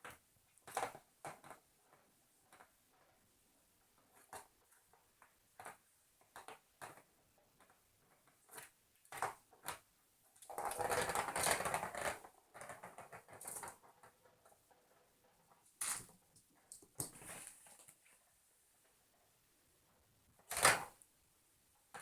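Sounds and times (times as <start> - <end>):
ball toy rattling in plastic track: 10.4 - 15.3.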